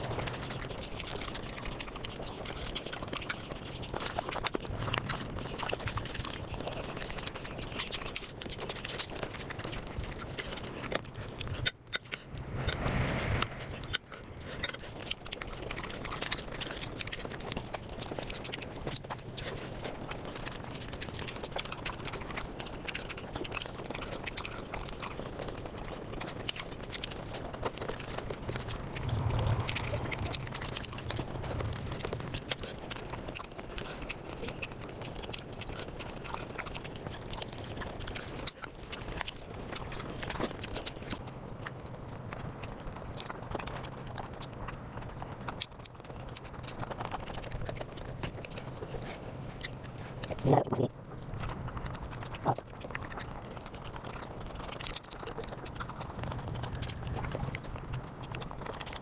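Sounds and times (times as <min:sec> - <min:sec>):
rapid chewing and crunching: 0:00.0 - 0:59.0
low steady hum: 0:27.5 - 0:35.2.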